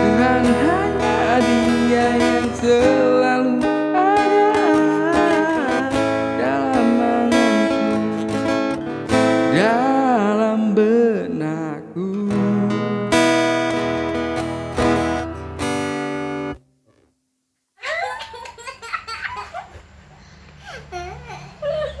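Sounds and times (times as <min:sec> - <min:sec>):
acoustic guitar strumming: 0:00.0 - 0:17.1.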